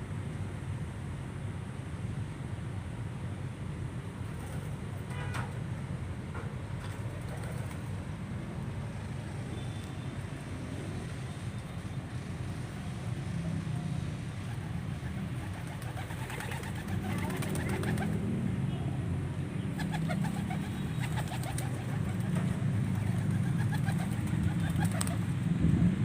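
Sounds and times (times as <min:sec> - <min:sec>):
pigeons cooing: 0:14.5 - 0:18.2, 0:19.8 - 0:25.3.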